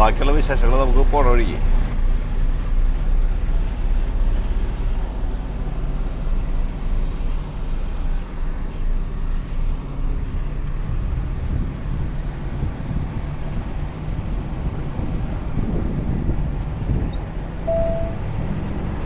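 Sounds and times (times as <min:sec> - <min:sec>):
diesel truck engine humming: 0:00.0 - 0:19.0.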